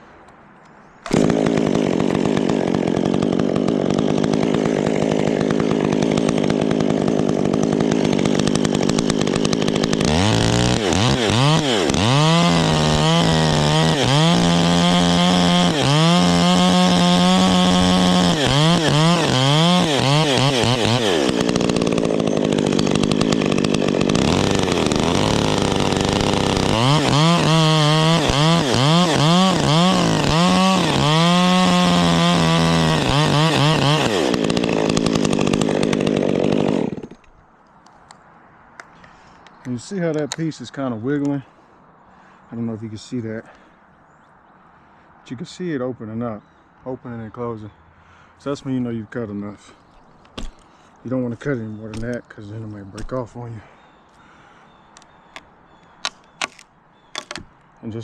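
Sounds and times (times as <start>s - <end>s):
chainsaw revving and cutting: 1.0s - 37.3s, 50.4s - 53.4s.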